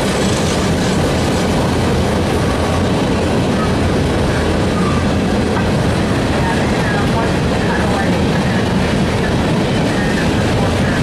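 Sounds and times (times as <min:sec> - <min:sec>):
freight train rumbling past: 0:00.0 - 0:11.0.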